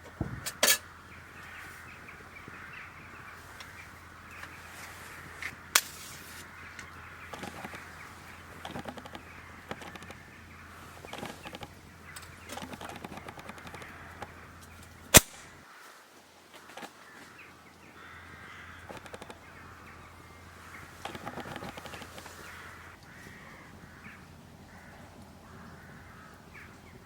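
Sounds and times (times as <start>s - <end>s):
campfire crackling: 0.0s - 15.8s
crows cawing: 0.0s - 16.0s, 16.6s - 27.0s
sharp pop from fire: 15.2s - 15.5s.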